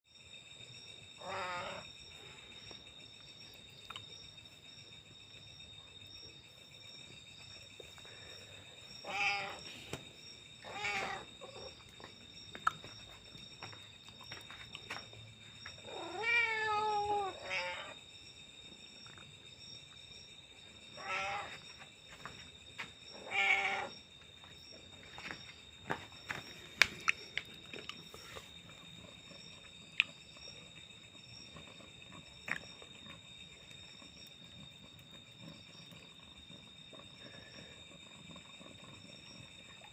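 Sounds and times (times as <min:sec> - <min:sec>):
cat meowing: 0:09.0 - 0:09.6, 0:10.6 - 0:11.3, 0:15.9 - 0:18.0, 0:21.0 - 0:21.5, 0:23.2 - 0:23.9.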